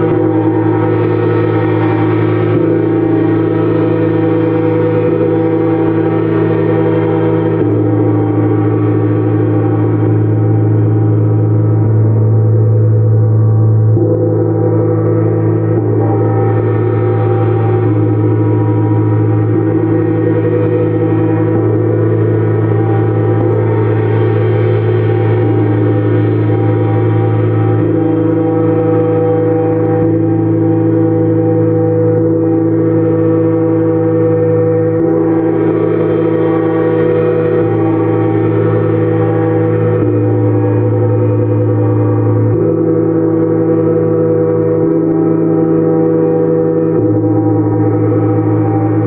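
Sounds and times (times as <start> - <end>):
gongs ringing: 13.9 - 49.0.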